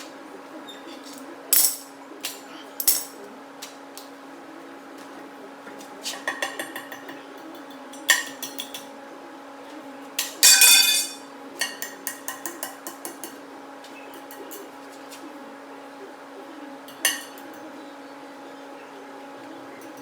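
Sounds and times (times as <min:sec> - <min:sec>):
steady low hum: 0:00.0 - 0:20.0
sharp ringing metal strike: 0:10.4 - 0:11.2.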